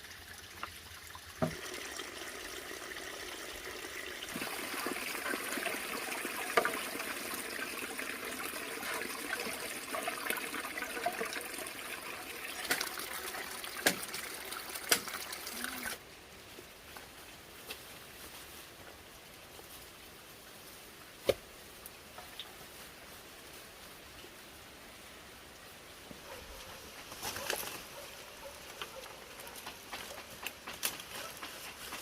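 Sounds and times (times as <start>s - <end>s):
water trickling and splashing: 0.0s - 16.0s.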